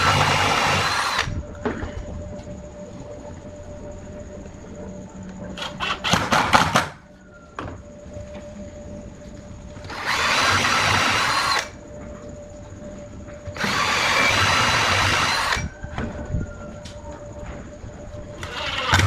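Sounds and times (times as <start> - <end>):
power tool running: 0.0 - 1.4, 9.8 - 11.8, 13.6 - 15.6.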